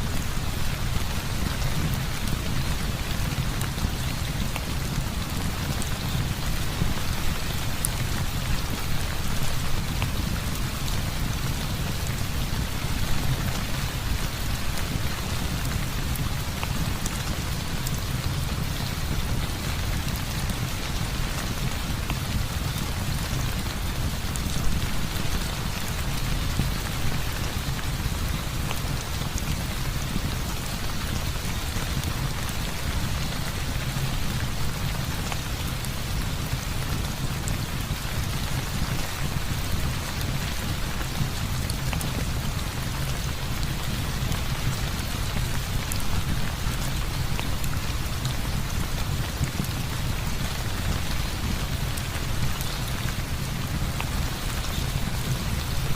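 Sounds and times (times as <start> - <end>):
heavy rain falling: 0.0 - 55.9
ticks of raindrops: 0.0 - 55.9.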